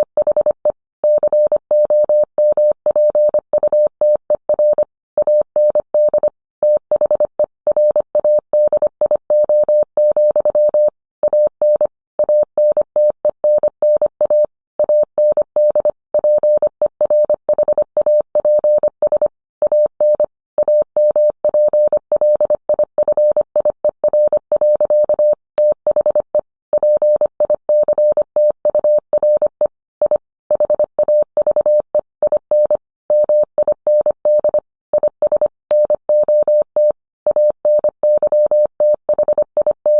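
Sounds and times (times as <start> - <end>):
morse code tone: 32.5 - 39.9.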